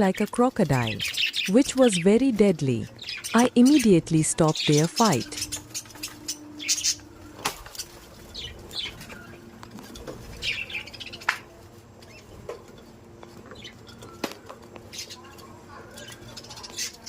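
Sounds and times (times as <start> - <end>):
budgerigars chirping: 0.0 - 9.4, 10.3 - 11.4.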